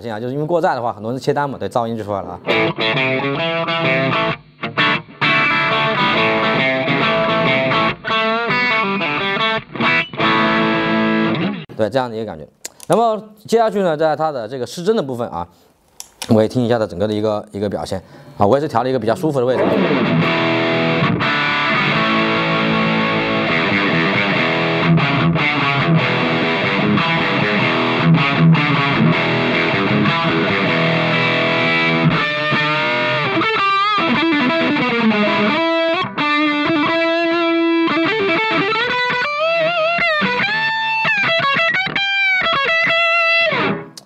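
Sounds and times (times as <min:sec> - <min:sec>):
distorted electric guitar: 0:02.4 - 0:11.7, 0:19.5 - 0:44.0.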